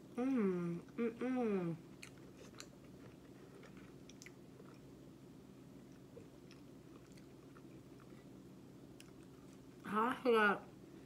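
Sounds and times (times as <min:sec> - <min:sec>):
steady low hum: 0:00.0 - 0:11.0
quiet chewing of fries: 0:01.8 - 0:09.9.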